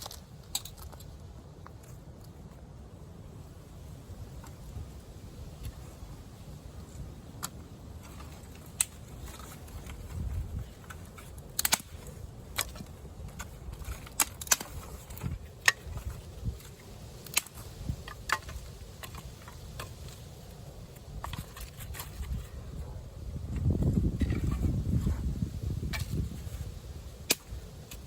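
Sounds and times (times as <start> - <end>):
firewood cracking and knocking: 6.9 - 20.2.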